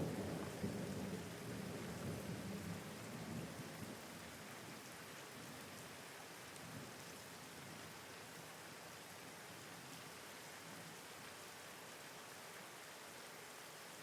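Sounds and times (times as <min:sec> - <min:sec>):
thunder rumble: 0:00.0 - 0:03.5
rain hiss: 0:00.0 - 0:14.0.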